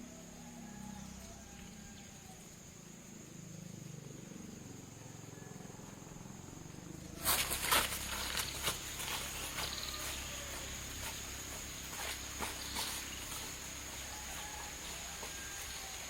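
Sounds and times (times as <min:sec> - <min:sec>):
high insect chirring: 0:00.0 - 0:16.0
loud crackling and rustling: 0:07.2 - 0:16.0.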